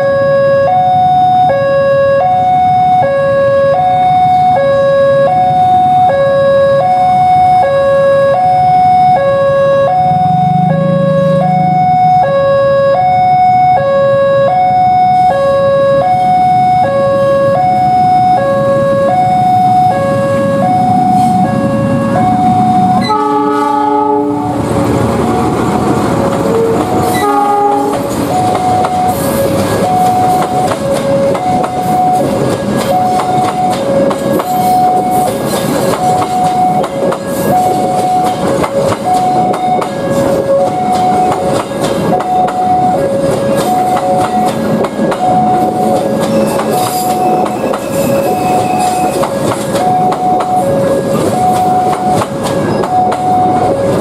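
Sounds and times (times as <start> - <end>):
locomotive horn blasts: 0.0 - 24.7, 26.4 - 35.4
electronic warning alarm: 0.0 - 54.0
train rumbling and clattering: 18.0 - 54.0.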